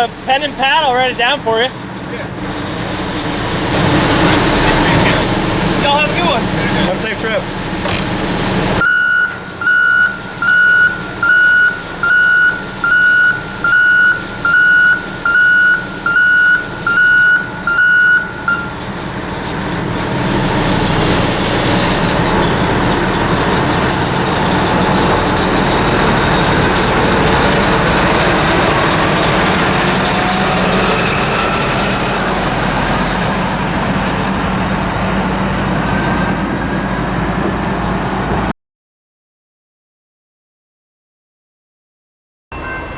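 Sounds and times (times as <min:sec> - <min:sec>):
passing vehicle rumbling rush: 0:00.0 - 0:08.8, 0:18.7 - 0:38.5
electronic warning beeps: 0:08.8 - 0:18.8.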